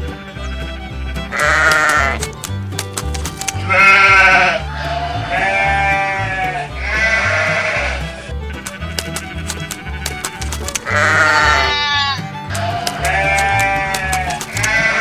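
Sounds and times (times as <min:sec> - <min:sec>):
music with bass and percussion: 0:00.0 - 0:15.0
sheep bleating: 0:01.3 - 0:02.2, 0:03.6 - 0:09.2, 0:10.8 - 0:15.0.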